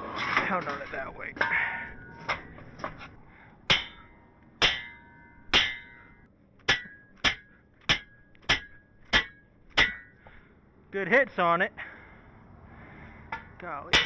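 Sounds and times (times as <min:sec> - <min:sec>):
hammer striking steel tube: 0:03.7 - 0:10.3, 0:13.3 - 0:14.0.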